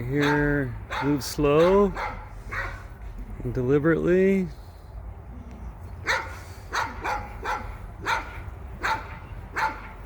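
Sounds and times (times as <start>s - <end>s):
dog barking: 0.2s - 2.9s, 6.0s - 10.0s.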